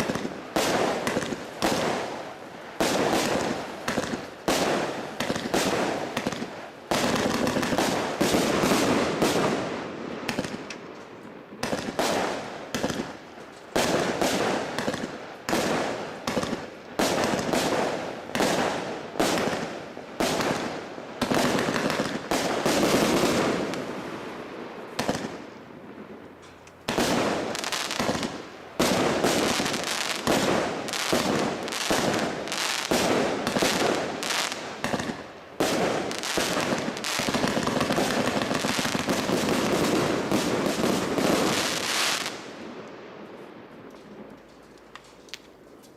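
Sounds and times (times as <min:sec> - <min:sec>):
firework shots and bangs: 0:00.0 - 0:02.2, 0:02.8 - 0:10.8, 0:11.6 - 0:24.0, 0:24.9 - 0:25.5, 0:26.9 - 0:42.5
firework crackling and fizzing: 0:00.0 - 0:10.7, 0:26.9 - 0:42.6.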